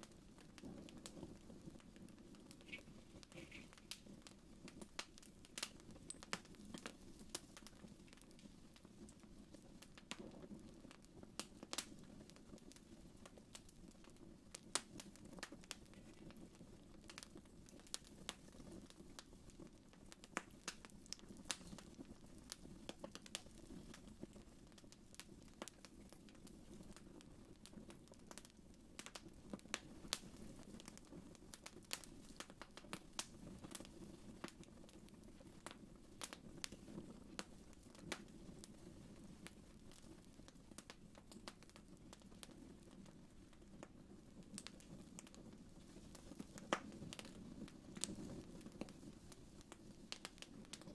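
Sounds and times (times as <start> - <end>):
low rumble of flames: 0.0 - 50.9
wood fire crackling: 0.0 - 50.9.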